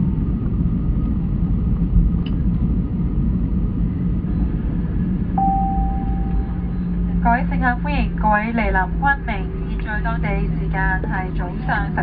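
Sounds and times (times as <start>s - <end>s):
aircraft engines rumbling: 0.0s - 12.0s
aircraft rolling on runway: 0.0s - 12.0s
thin steady tone: 5.4s - 7.0s.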